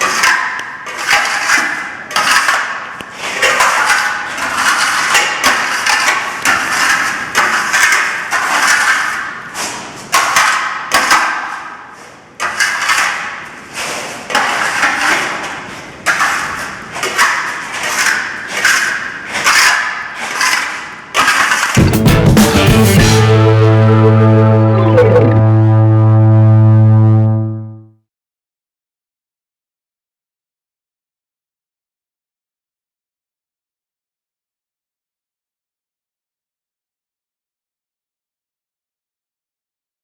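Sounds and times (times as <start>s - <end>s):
trowel scraping plaster: 0.0s - 21.8s.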